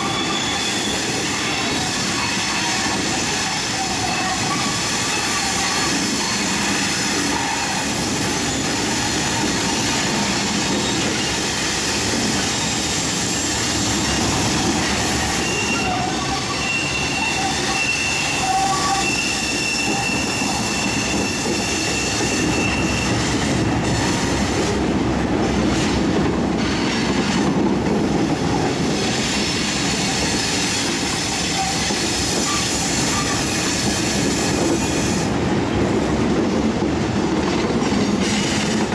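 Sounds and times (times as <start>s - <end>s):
high wheel squeal: 0.0s - 24.5s, 29.2s - 35.3s
train wheels rumbling on rails: 0.0s - 38.9s.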